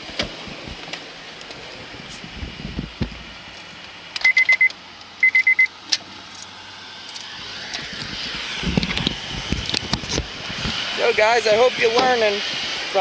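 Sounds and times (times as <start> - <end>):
high electronic beeps: 4.2 - 5.7.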